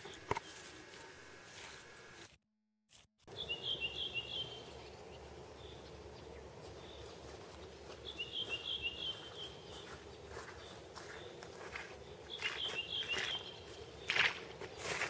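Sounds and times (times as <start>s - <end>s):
faint outdoor background noise: 0.0s - 2.4s, 3.3s - 15.0s
songbird chirping: 3.3s - 15.0s.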